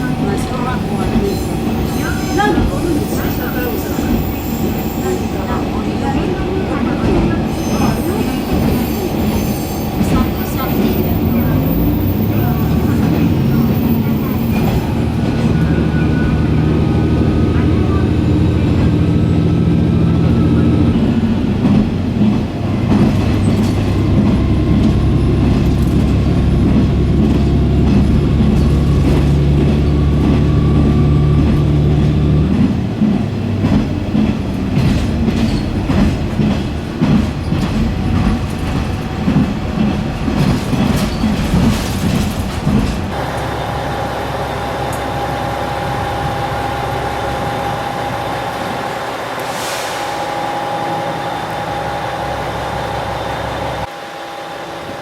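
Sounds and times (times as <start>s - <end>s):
train rumbling: 0.0s - 55.0s
wheels clattering over rail joints: 21.6s - 46.0s.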